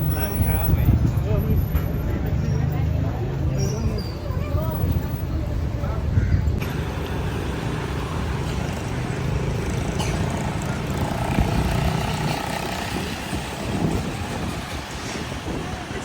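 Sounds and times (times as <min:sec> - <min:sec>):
wind buffeting microphone: 0:00.0 - 0:07.0, 0:10.4 - 0:16.0.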